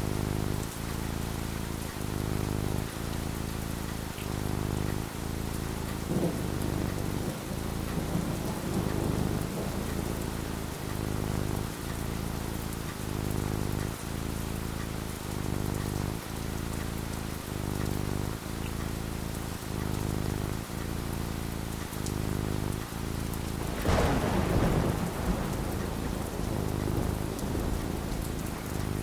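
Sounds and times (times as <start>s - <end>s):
steady rain falling: 0.0s - 29.0s
low roll of thunder: 6.0s - 12.6s, 23.6s - 29.0s.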